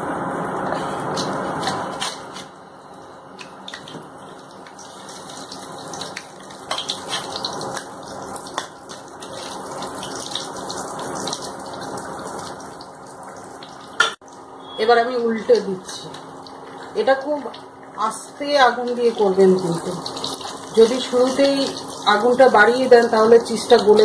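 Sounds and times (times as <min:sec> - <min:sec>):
oil popping and crackling: 0:03.4 - 0:14.4, 0:18.8 - 0:24.0
food sizzling in oil: 0:04.1 - 0:14.1, 0:18.6 - 0:24.0.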